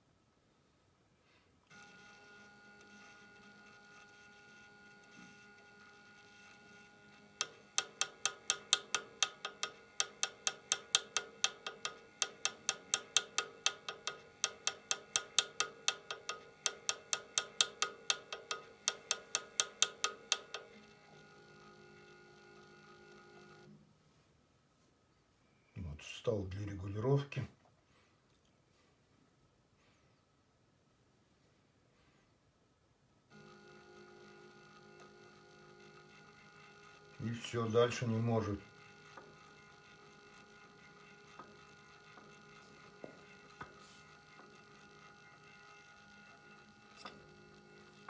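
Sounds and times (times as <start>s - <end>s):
faint electrical hum: 0.0s - 48.0s
stepper motor clicking: 4.8s - 23.7s, 33.3s - 48.0s.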